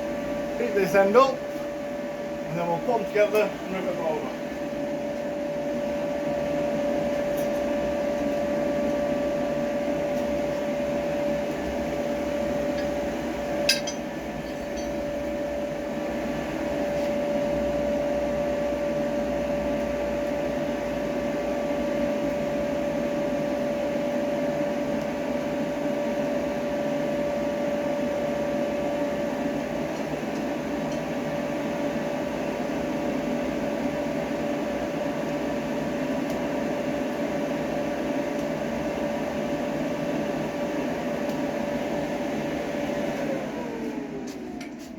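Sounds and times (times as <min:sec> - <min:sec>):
air blower hum: 0:00.0 - 0:44.9
metallic clink: 0:13.7 - 0:15.0.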